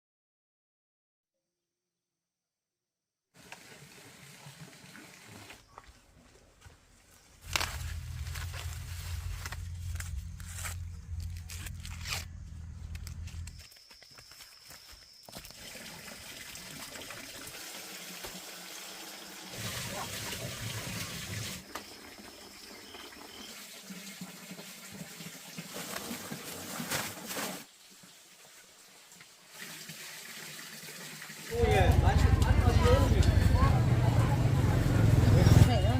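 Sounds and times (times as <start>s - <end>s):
running water splashing: 14.1s - 31.6s.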